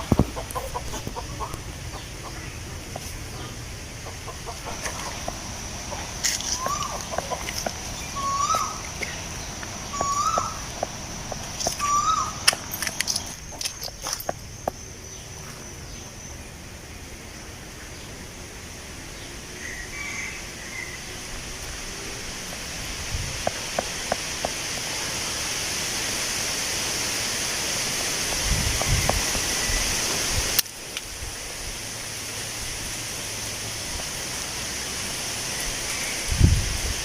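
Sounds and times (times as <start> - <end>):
wind rumble on microphone: 0.0 - 2.0, 22.3 - 24.8, 28.2 - 31.8, 35.7 - 37.0
wind rustling tree leaves: 0.0 - 37.0
faint high chirp: 9.9 - 10.6.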